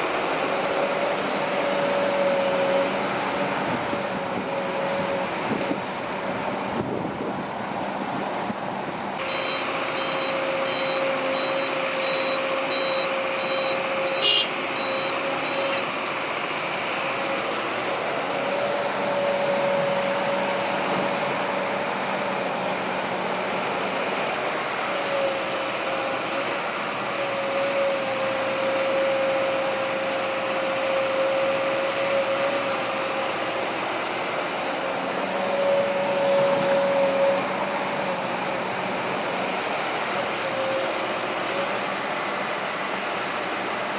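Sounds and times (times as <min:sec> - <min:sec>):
diesel engines running: 0:00.0 - 0:43.9
repeating electronic beep: 0:09.2 - 0:13.8, 0:14.8 - 0:15.8.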